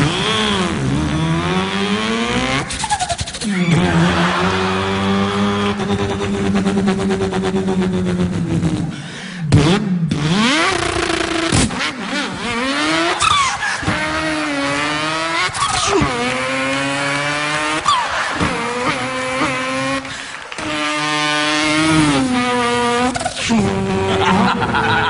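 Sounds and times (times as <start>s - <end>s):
man imitating car engine: 0.0s - 25.0s.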